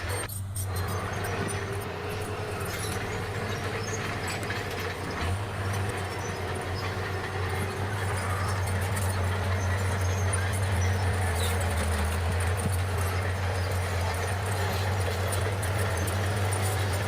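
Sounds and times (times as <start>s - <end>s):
bulldozer diesel engine drone: 0.0s - 17.0s.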